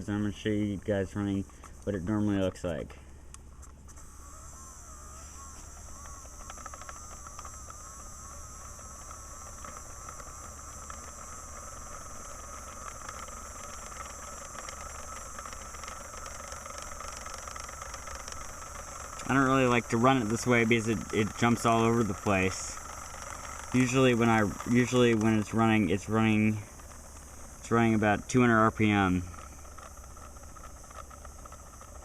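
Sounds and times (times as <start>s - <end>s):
electric motor high whine: 3.4s - 32.0s
rattle of model moving parts: 3.6s - 32.0s.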